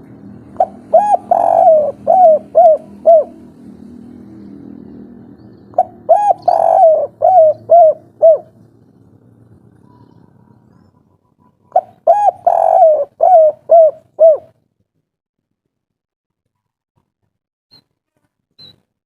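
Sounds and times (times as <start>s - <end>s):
dove cooing: 0.0s - 3.7s, 5.7s - 8.6s, 9.8s - 14.6s.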